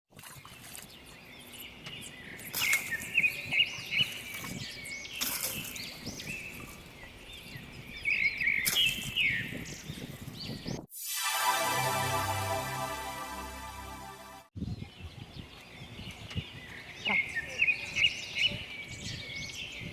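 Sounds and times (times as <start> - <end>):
small birds chirping: 0.4 - 10.8.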